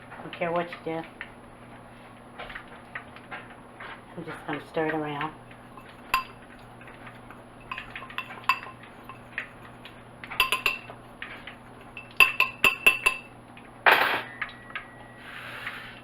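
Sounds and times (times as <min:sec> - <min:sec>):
utensil clinking against bowl: 0:04.4 - 0:13.4.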